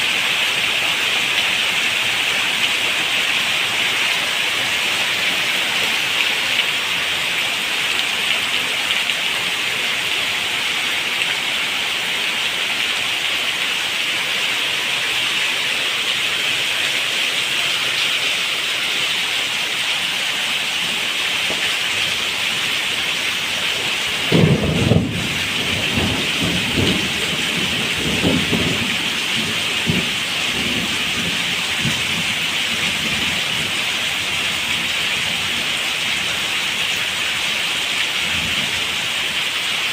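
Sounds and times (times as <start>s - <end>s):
heavy rain: 0.0s - 39.9s
thunder crack and rumble: 24.2s - 32.3s.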